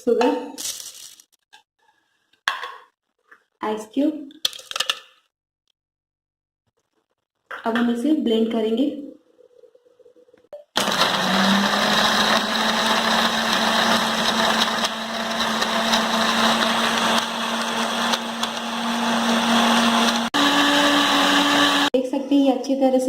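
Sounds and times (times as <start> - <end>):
electric blender grinding ice: 10.8 - 22.0.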